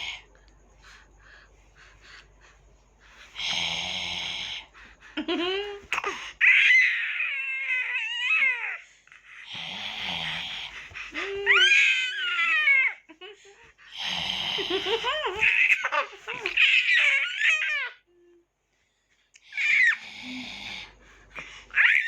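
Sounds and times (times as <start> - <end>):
baby crying and squealing: 6.0 - 8.8, 11.5 - 13.0, 15.4 - 18.0, 19.6 - 20.0, 21.8 - 22.0.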